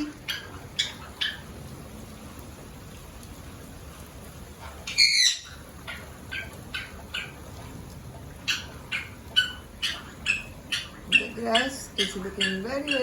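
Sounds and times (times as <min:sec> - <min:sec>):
parrot loud squawk: 0:04.9 - 0:05.6.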